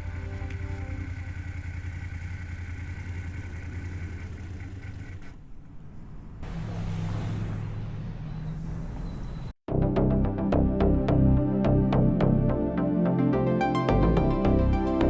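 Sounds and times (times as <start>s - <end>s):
motorcycle engine running: 0.0s - 5.6s.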